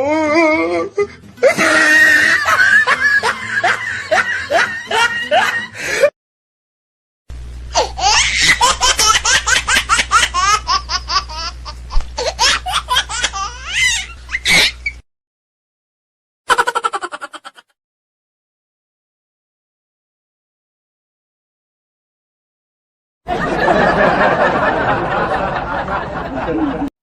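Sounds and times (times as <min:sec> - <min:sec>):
hearty laughing: 0:01.4 - 0:06.1, 0:23.3 - 0:26.9
faint steady hum: 0:07.3 - 0:15.0.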